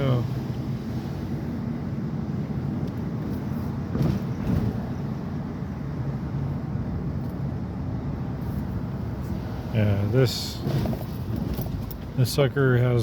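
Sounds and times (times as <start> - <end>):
engine running with low rumble: 0.0 - 13.0.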